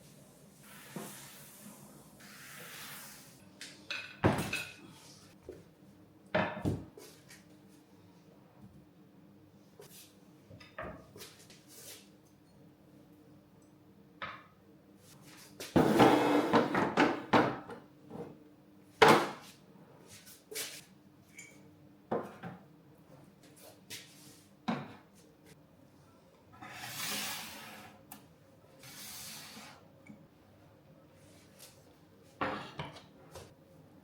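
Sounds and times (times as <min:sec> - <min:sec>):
kitchenware clattering: 0:03.8 - 0:04.8.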